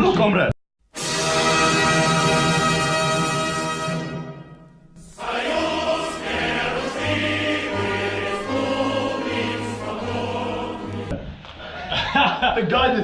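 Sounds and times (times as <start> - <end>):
choir singing: 5.0 - 11.2.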